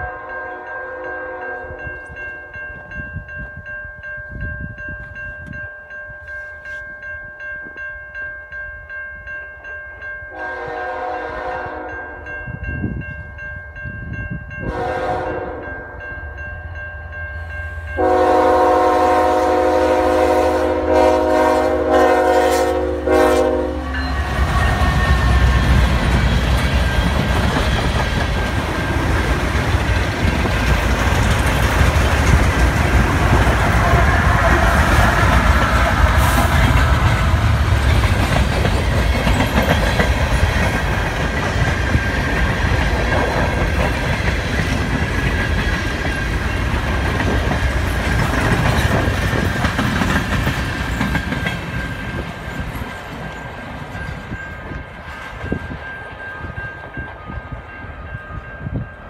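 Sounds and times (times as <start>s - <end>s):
train air horn blasts: 0.0s - 1.9s, 10.3s - 12.2s, 14.6s - 15.9s, 18.0s - 25.8s, 33.6s - 37.6s
railway crossing bell ringing: 0.0s - 59.0s
train wheels rumbling on rails: 17.4s - 59.0s.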